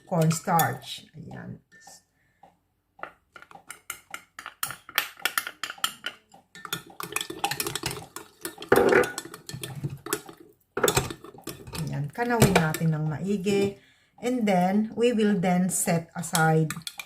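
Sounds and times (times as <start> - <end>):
spoon scraping bowl: 3.4 - 13.8.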